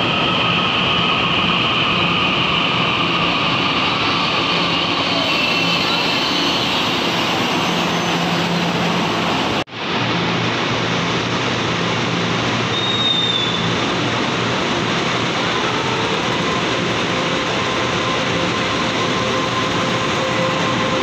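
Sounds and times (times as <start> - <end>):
high squeal: 0.0 - 9.6, 12.7 - 13.9
train wheels and motors rushing: 0.0 - 21.0.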